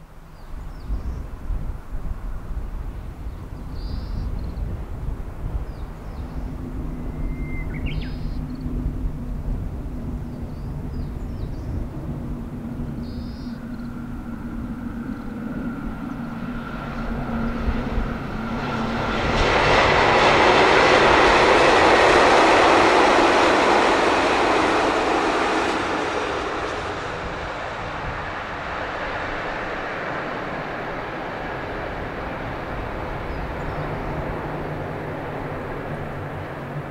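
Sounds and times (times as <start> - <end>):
diesel train engine hum: 4.6 - 36.9
train wheels rushing on rail: 12.3 - 36.9.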